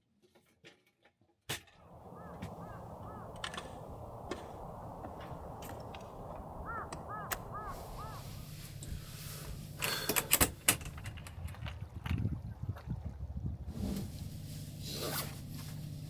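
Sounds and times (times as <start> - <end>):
steady rushing noise: 1.8 - 9.8
bird calling short notes: 2.0 - 8.8.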